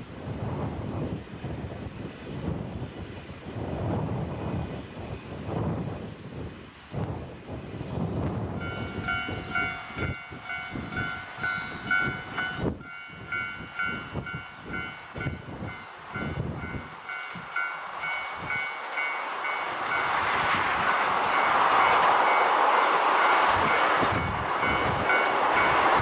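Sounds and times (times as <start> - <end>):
approaching train rush: 0.0 - 26.0
wind buffeting microphone: 0.0 - 26.0
pulsing ringing tone: 8.6 - 19.6.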